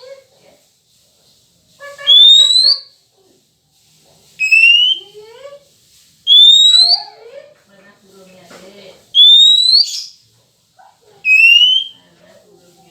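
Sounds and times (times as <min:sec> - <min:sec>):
rising whistles: 0:02.1 - 0:02.8, 0:04.4 - 0:05.0, 0:06.3 - 0:07.0, 0:09.2 - 0:10.0, 0:11.3 - 0:12.0.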